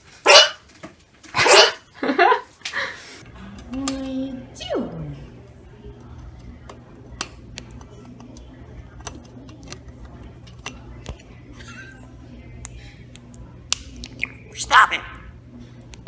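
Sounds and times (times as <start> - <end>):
steady low hum: 3.2 - 16.0.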